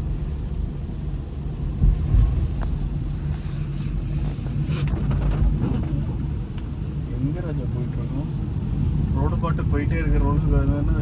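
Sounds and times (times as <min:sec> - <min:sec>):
engine and road rumble: 0:00.0 - 0:11.0
low thumps: 0:01.7 - 0:03.1.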